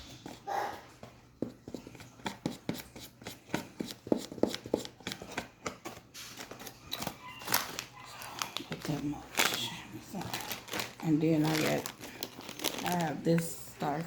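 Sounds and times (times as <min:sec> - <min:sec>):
spoon tapping and scraping: 0:01.0 - 0:07.2.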